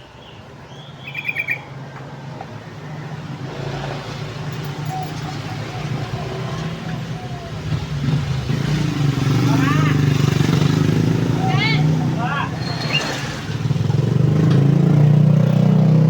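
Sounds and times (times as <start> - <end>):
bird chattering: 0.7 - 1.8.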